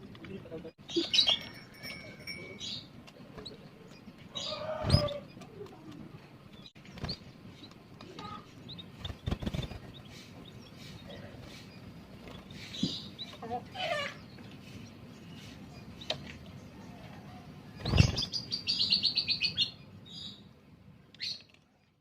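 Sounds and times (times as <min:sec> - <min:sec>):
canaries chirping: 0:00.3 - 0:21.5
wings fluttering in cage: 0:06.8 - 0:13.1, 0:17.7 - 0:18.6.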